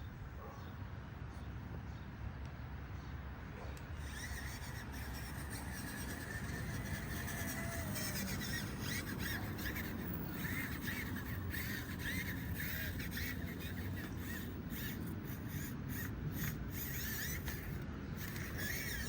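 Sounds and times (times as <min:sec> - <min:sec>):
birds calling: 0:04.0 - 0:19.0.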